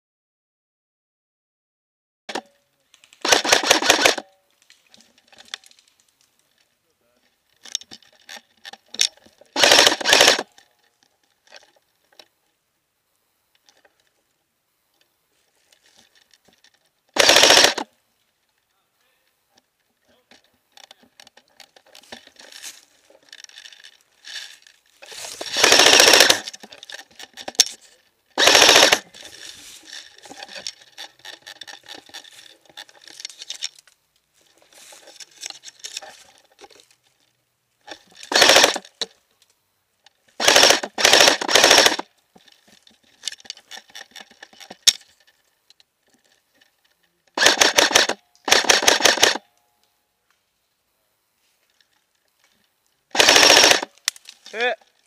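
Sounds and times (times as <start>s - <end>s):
distant airsoft fire: 3.2s - 4.2s, 9.6s - 10.4s, 17.2s - 17.8s, 25.5s - 26.4s, 28.4s - 29.0s, 38.3s - 38.8s, 40.4s - 42.0s, 53.2s - 53.9s
airsoft rifle full-auto bursts: 3.2s - 4.3s, 9.6s - 10.5s, 17.2s - 17.9s, 25.0s - 26.6s, 28.4s - 29.2s, 38.2s - 38.9s, 40.4s - 42.1s, 47.4s - 49.5s, 53.1s - 54.0s.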